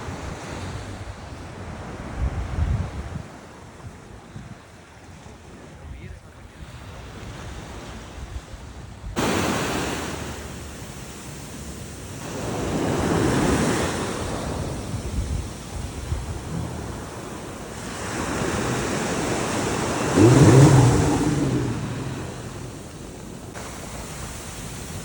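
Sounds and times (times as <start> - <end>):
wind buffeting microphone: 0.0 - 4.6, 7.3 - 25.0
sea waves rushing: 9.2 - 25.0.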